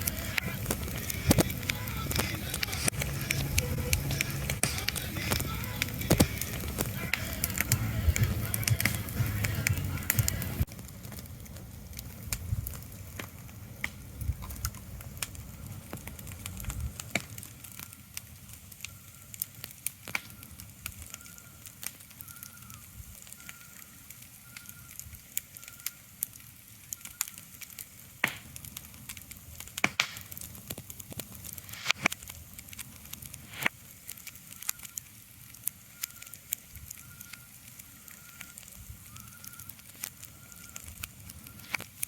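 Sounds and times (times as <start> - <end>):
sharp crackling clicks: 0.0 - 42.0
low rumble: 0.1 - 10.9.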